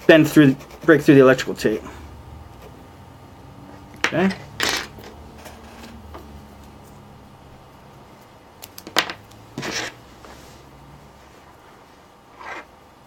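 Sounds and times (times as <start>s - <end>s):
low steady hum: 0.0s - 13.0s
sharp scrape: 9.6s - 10.6s, 11.4s - 12.7s.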